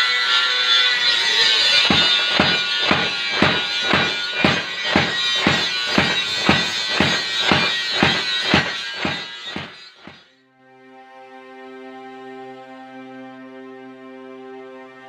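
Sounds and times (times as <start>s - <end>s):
hammer striking hot steel: 1.7s - 10.3s.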